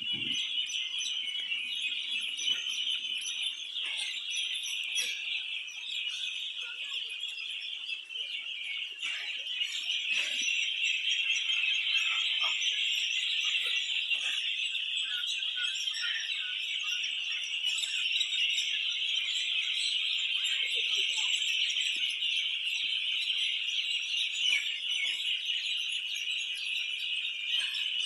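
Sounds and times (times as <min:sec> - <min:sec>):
birds chirping chorus: 0:00.0 - 0:28.0.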